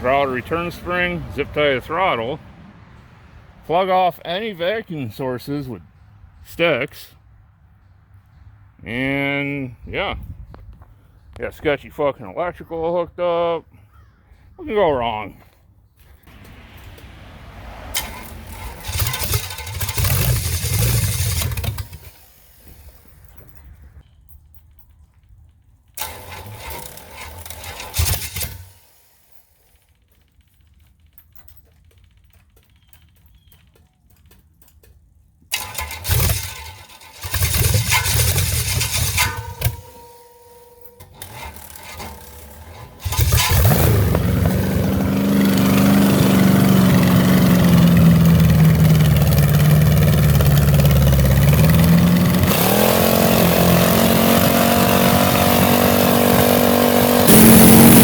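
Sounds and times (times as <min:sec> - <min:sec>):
engine running loud: 0:00.0 - 0:02.7, 0:16.3 - 0:22.0, 0:42.7 - 0:58.0
engine starting attempts: 0:16.2 - 0:23.6, 0:25.9 - 0:33.6, 0:35.5 - 0:58.0.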